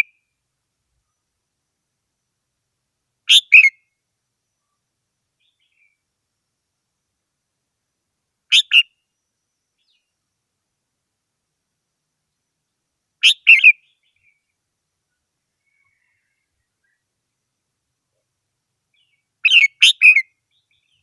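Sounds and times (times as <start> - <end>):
bulbul singing: 13.2 - 14.4, 18.9 - 21.0.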